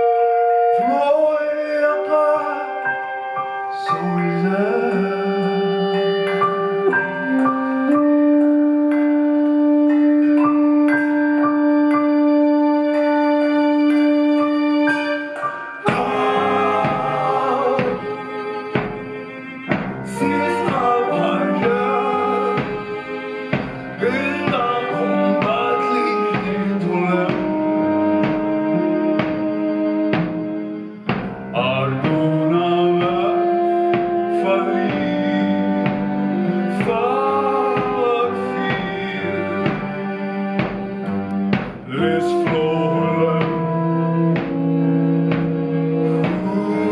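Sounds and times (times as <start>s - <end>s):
person singing: 0.0s - 11.1s, 11.8s - 30.6s, 31.5s - 46.9s
held instrumental tones: 0.0s - 46.9s
steady drum beat: 15.8s - 28.6s, 30.1s - 32.4s, 35.8s - 46.9s.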